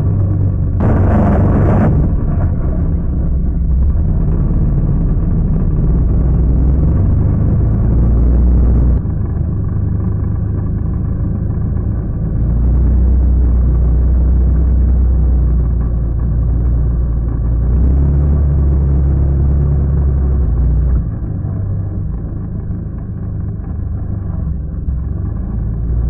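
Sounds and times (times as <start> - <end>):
quad bike engine rumbling: 0.0 - 26.0
loud noisy burst: 0.8 - 9.1.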